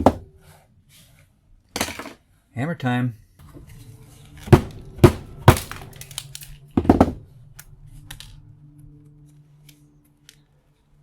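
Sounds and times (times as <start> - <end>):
hammer striking metal: 4.4 - 7.2.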